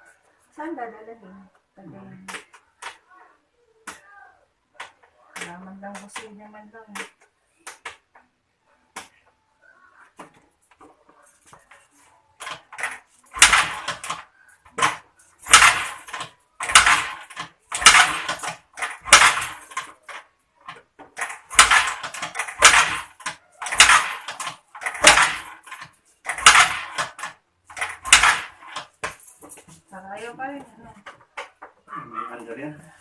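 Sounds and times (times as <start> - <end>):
scooter kick-starter cranking: 14.8 - 20.2, 21.2 - 29.2.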